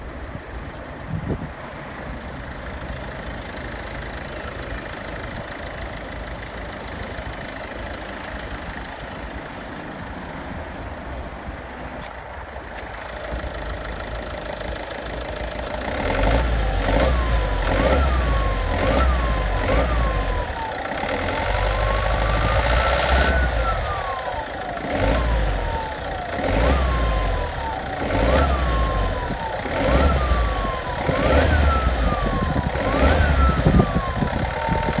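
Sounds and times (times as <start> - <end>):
diesel engine idling and revving: 0.0 - 35.0
siren-like turbo howl: 16.9 - 35.0.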